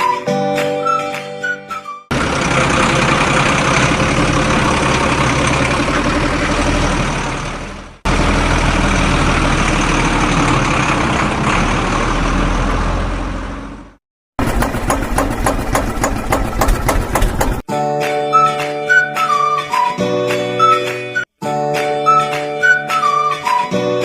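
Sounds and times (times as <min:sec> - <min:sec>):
heavy vehicle engine running: 0:02.1 - 0:17.7.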